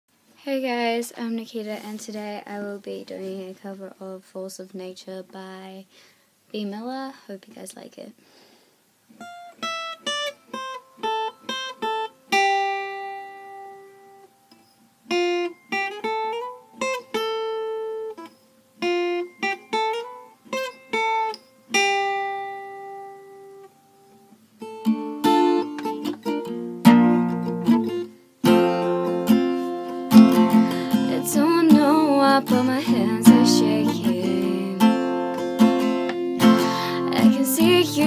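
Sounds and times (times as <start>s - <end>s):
acoustic guitar plucked notes: 9.2s - 38.0s
strummed guitar chords: 24.6s - 38.0s.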